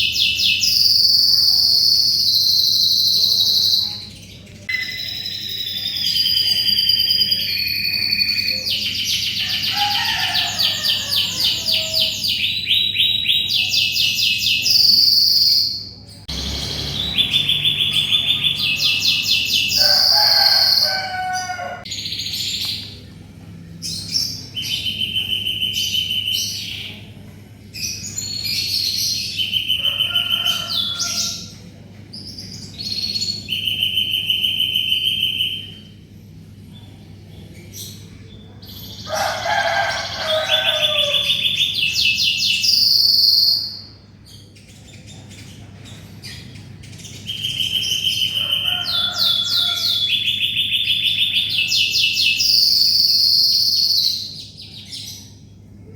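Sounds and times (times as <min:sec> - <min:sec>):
canary singing trills: 0:00.0 - 0:23.0, 0:37.6 - 0:55.5.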